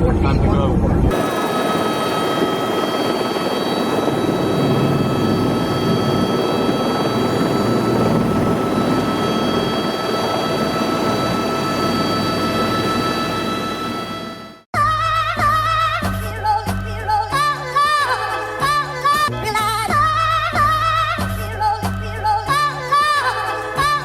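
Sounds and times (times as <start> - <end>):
helicopter running: 0.0 - 14.7
high whining tones: 1.0 - 15.0.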